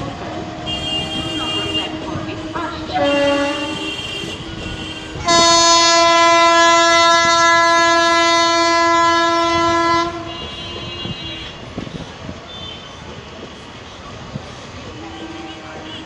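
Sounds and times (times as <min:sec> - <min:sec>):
train rumble: 0:00.0 - 0:16.0
train horn blast: 0:00.4 - 0:02.2, 0:03.0 - 0:11.6.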